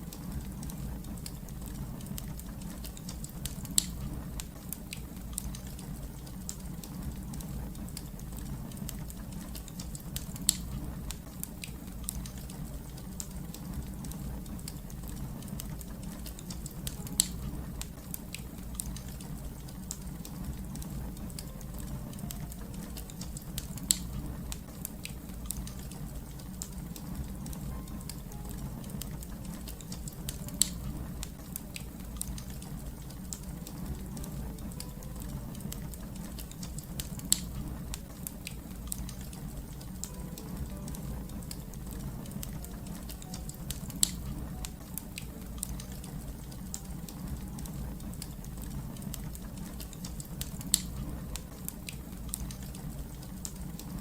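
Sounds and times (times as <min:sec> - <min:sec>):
low rumble: 0:00.0 - 0:04.6, 0:12.0 - 0:49.7
fire crackling: 0:00.0 - 0:54.0
fire popping: 0:00.0 - 0:54.0.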